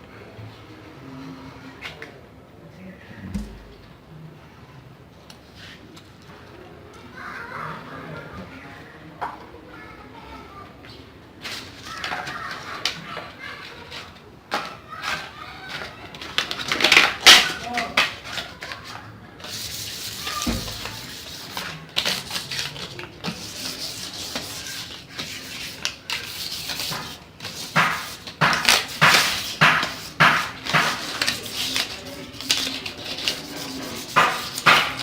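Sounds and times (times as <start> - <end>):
scraping wood filler onto wood: 19.4 - 35.0.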